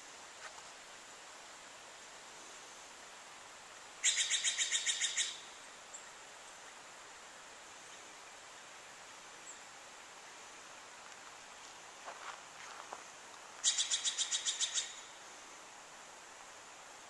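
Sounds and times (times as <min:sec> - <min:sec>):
bird trill: 0:04.0 - 0:05.5, 0:13.6 - 0:15.1.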